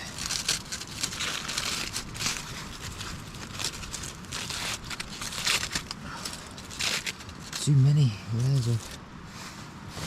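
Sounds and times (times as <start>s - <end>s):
tin foil crinkling and tearing: 0.0s - 9.0s.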